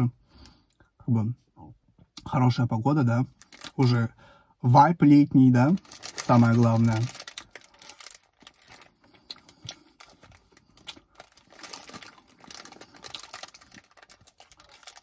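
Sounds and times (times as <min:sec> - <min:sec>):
wafer cone crunching: 0:05.8 - 0:09.4, 0:10.0 - 0:15.0.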